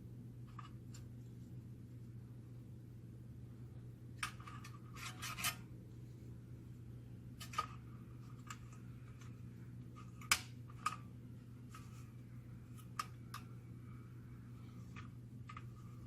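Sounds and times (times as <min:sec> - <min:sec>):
steady low hum: 0:00.0 - 0:16.0
metal parts scraping: 0:04.3 - 0:05.6.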